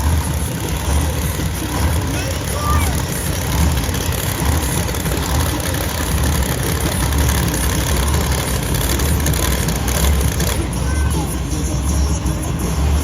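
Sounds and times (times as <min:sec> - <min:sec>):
monster truck engine rumbling: 0:00.0 - 0:13.0.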